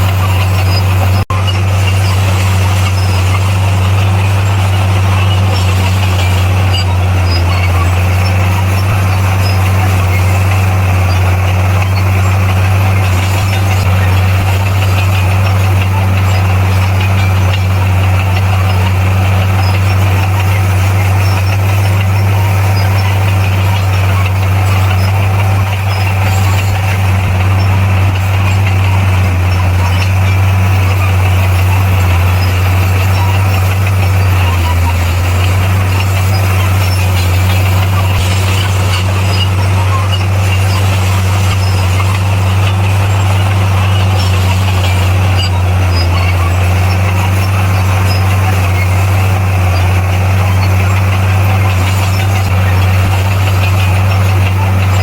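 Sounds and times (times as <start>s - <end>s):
bulldozer diesel engine droning: 0.0s - 55.0s.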